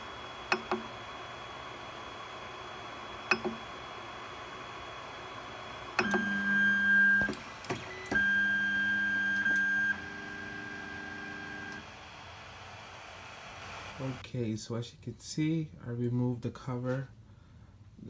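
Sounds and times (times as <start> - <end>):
stepper motors whining: 0.0 - 14.2
printer clicks: 3.3 - 3.6, 6.0 - 6.3.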